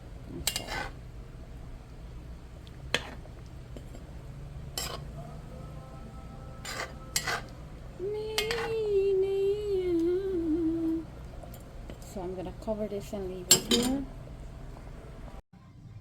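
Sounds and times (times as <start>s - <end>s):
person humming: 5.1s - 11.1s
metal spoon clinking on metal pan: 6.6s - 7.6s, 8.4s - 8.7s, 13.5s - 14.0s.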